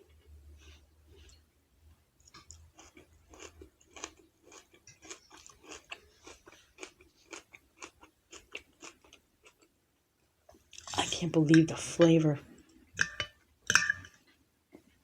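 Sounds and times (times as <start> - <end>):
person chewing with mouth clicks: 2.2 - 9.7.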